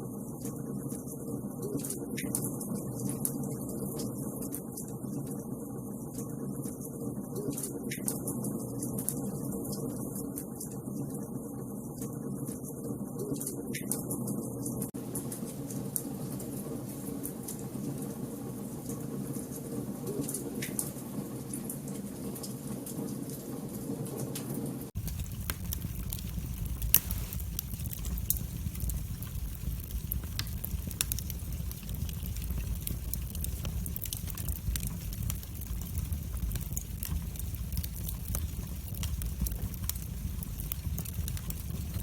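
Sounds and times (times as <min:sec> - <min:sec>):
wood fire hissing: 0:15.0 - 0:23.5, 0:24.4 - 0:42.0
fire crackling and popping: 0:24.9 - 0:42.0
deep low rumble: 0:25.0 - 0:42.0.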